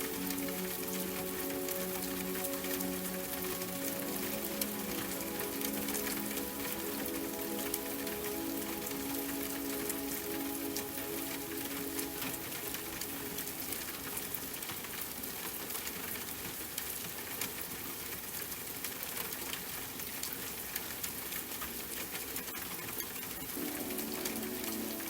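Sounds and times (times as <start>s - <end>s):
soft sustained music tones: 0.0s - 15.1s, 23.4s - 25.0s
steady rain falling: 0.0s - 25.0s.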